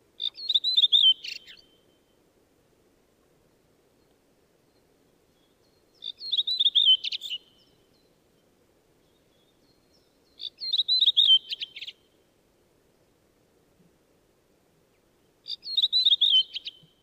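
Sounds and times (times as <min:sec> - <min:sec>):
bird singing whistled notes: 0:00.2 - 0:01.9, 0:04.6 - 0:12.1, 0:15.4 - 0:17.0.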